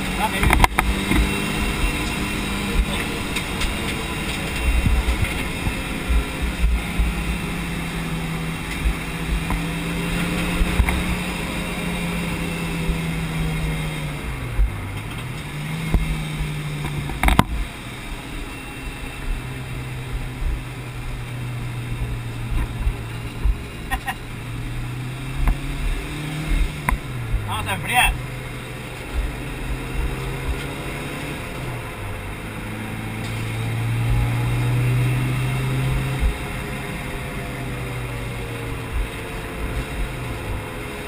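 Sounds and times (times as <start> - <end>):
car engine at high revs: 0.0 - 41.0
low rumble and thumping: 2.7 - 11.1, 14.3 - 17.7, 19.2 - 27.5, 29.0 - 30.9.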